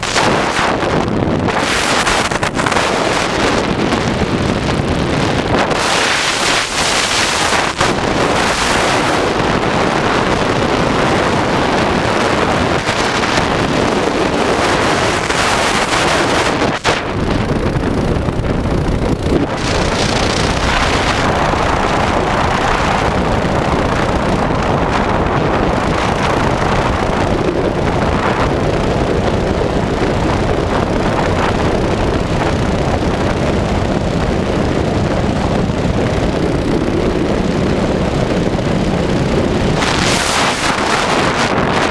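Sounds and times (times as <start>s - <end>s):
wind buffeting microphone: 0.0s - 41.9s
mini bike engine running: 17.1s - 39.8s.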